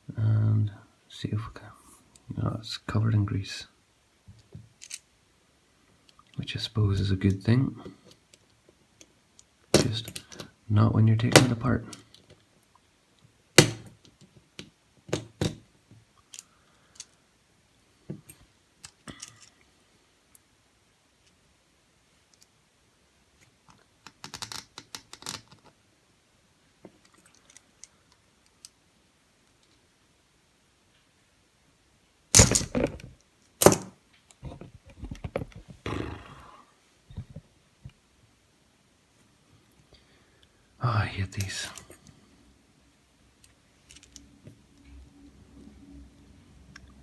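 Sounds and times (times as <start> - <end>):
metal clicks and knocks of padlock: 13.6 - 15.6, 32.4 - 33.9.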